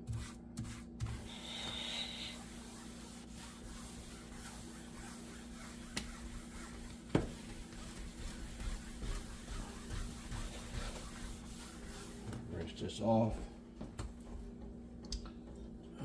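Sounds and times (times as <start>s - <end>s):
pad rubbing on glass cooktop: 0.0s - 12.5s
steady hum: 0.0s - 16.0s.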